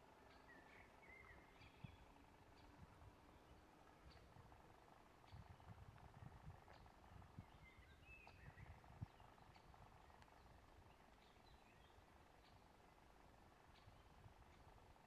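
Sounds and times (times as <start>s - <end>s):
faint bird chirps: 0.2s - 4.3s.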